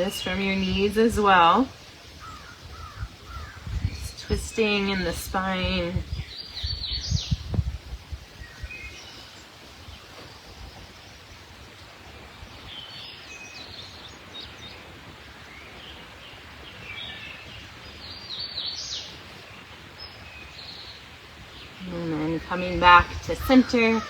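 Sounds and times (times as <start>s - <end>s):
birds chirping and trilling: 0.0s - 7.6s, 12.5s - 24.0s
steady background hiss: 0.0s - 24.0s.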